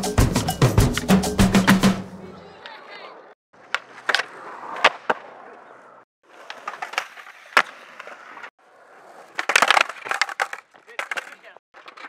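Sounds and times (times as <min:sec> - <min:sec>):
skateboard wheels rolling on concrete: 0:02.4 - 0:12.0
skateboard popping and landing clacks: 0:03.6 - 0:12.0.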